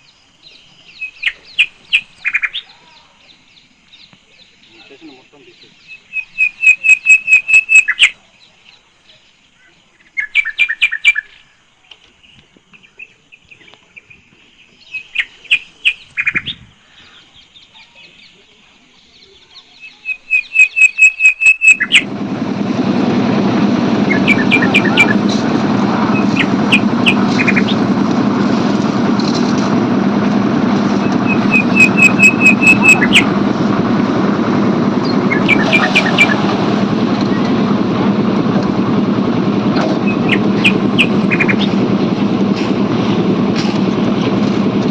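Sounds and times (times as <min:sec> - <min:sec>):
bird chirping in rapid bursts: 0:00.8 - 0:02.7, 0:04.7 - 0:08.2, 0:19.8 - 0:22.0, 0:26.2 - 0:27.8, 0:31.2 - 0:33.3, 0:40.1 - 0:41.8
steady loud noise: 0:21.6 - 0:44.9.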